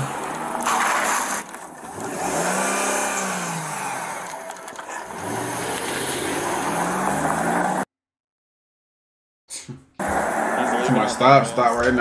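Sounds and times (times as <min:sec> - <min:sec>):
car engine revving: 0:00.0 - 0:07.9, 0:10.0 - 0:11.5.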